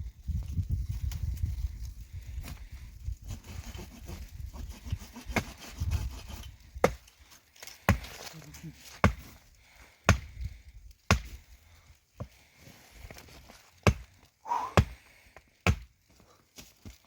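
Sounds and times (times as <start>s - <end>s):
firewood being chopped: 3.3s - 9.4s, 10.0s - 11.6s, 13.8s - 16.0s.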